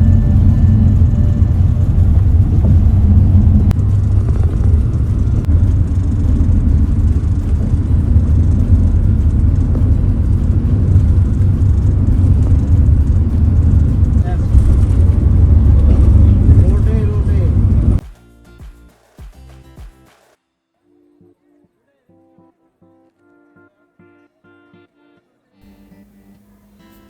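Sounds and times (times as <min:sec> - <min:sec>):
bus engine and road noise: 0:00.0 - 0:18.0.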